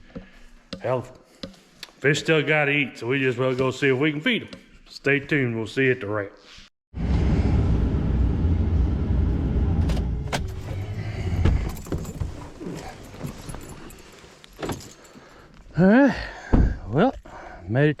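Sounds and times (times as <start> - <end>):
vehicle rumble: 7.0 - 13.7.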